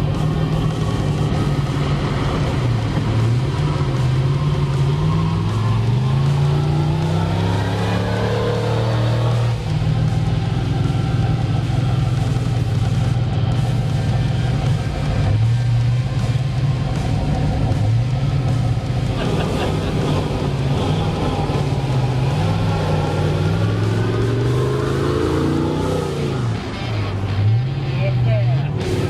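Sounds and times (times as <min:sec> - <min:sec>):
background music: 0:00.0 - 0:29.0
truck engine revving: 0:00.0 - 0:29.0.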